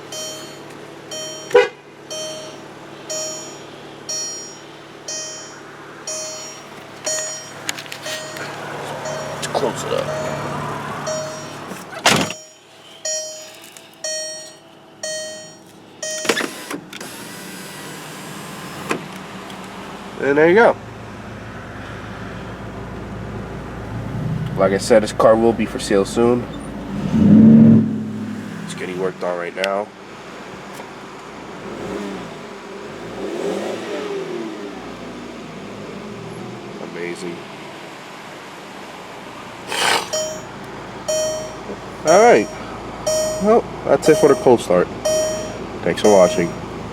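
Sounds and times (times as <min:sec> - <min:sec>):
car warning chime dinging: 0:00.0 - 0:16.7, 0:40.0 - 0:46.9
loud thud of door shutting: 0:12.0 - 0:12.4.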